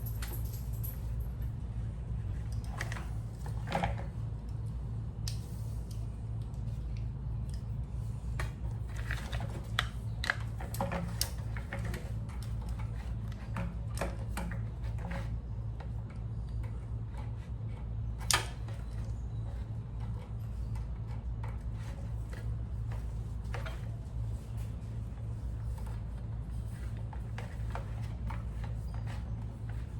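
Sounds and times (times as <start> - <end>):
steady low hum: 0.0 - 29.9
small clicks and taps of hands: 5.2 - 7.7.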